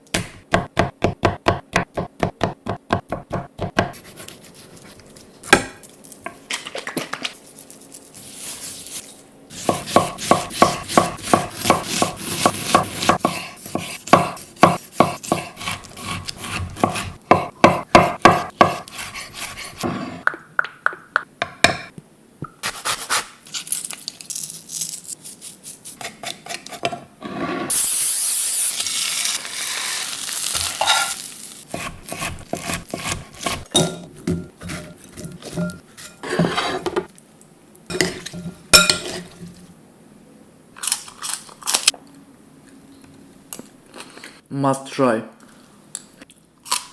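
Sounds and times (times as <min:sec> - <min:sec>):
knife chopping on cutting board: 0:00.1 - 0:04.4, 0:09.5 - 0:20.2, 0:31.7 - 0:37.1.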